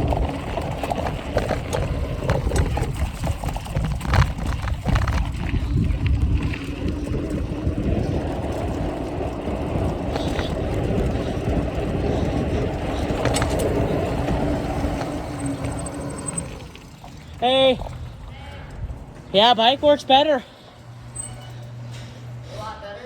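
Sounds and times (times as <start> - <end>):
wind on microphone: 0.0 - 16.7
bike rolling noise: 0.0 - 22.9.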